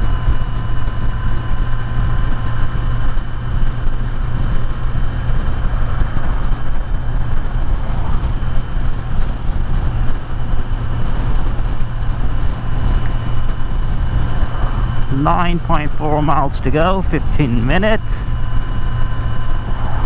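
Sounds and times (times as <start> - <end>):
motorcycle engine droning: 0.0 - 20.0
road noise: 0.0 - 20.0
wind rushing: 4.4 - 16.9.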